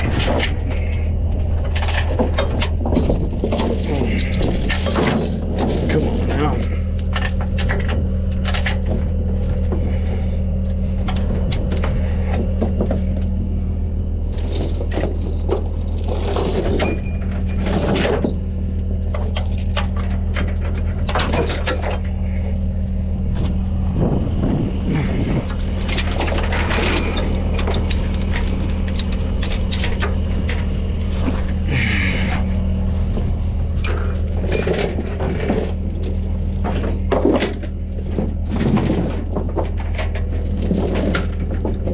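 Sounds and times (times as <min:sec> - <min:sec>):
diesel truck engine idling: 0:00.0 - 0:16.1, 0:18.2 - 0:41.9
metal chains clanking: 0:01.6 - 0:08.9, 0:14.2 - 0:18.4, 0:19.0 - 0:22.7, 0:25.4 - 0:30.7, 0:33.8 - 0:41.9.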